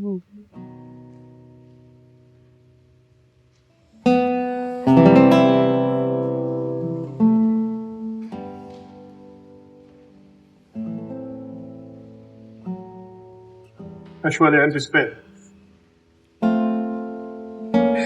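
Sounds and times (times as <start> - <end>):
acoustic guitar strums: 13.7 - 15.4.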